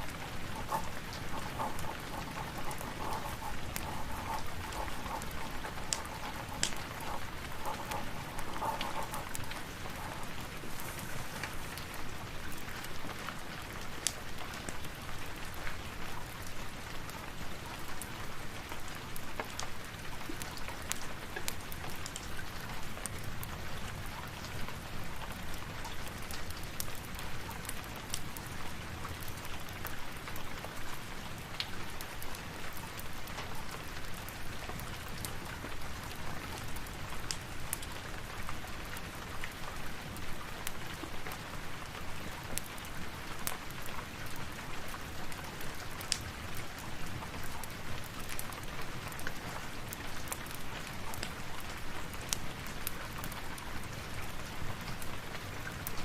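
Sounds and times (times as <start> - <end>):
sharp ticks: 0.0 - 10.4
steady rain: 0.0 - 56.0.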